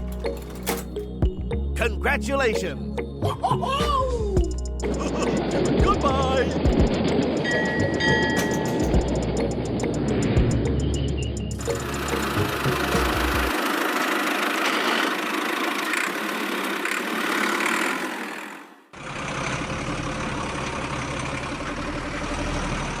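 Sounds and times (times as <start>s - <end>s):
small motor running: 11.6s - 19.6s.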